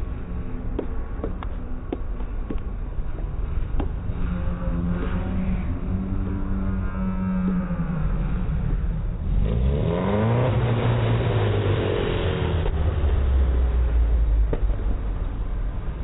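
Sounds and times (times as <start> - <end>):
motorcycle engine revving: 3.5 - 14.7.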